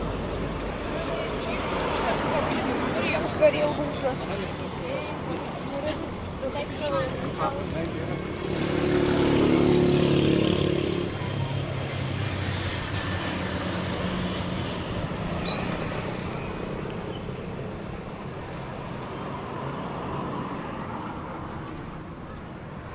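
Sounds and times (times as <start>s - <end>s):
street traffic noise: 0.0s - 22.9s
vehicle engine passing by: 8.3s - 11.3s.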